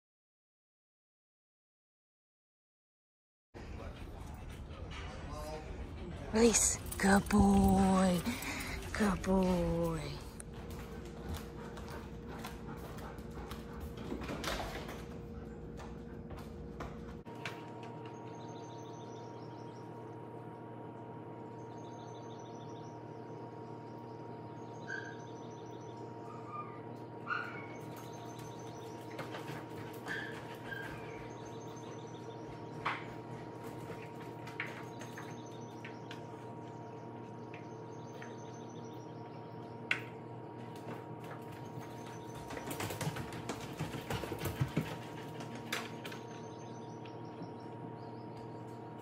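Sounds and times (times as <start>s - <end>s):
songbirds singing: 18.0s - 49.0s.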